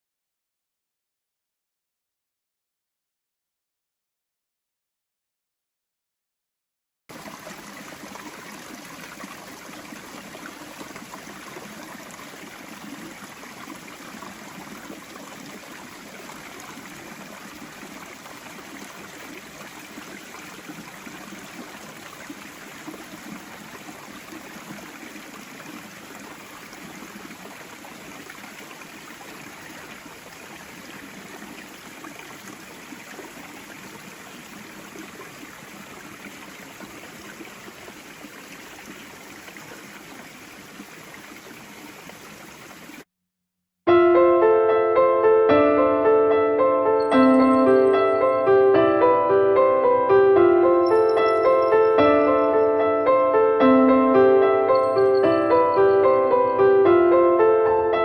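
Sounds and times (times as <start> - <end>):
stream rushing: 7.1 - 43.0.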